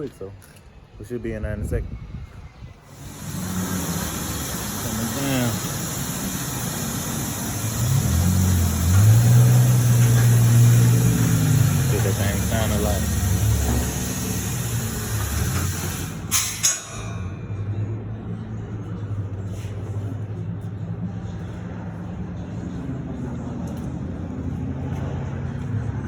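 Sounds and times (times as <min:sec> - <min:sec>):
loud hiss of air: 0:02.8 - 0:17.4
car engine idling: 0:02.9 - 0:16.3.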